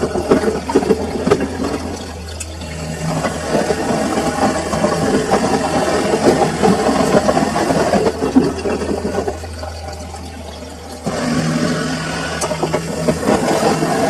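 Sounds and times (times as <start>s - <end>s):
laundry churning and sloshing: 0.0s - 14.0s
washing machine motor hum: 0.0s - 14.0s.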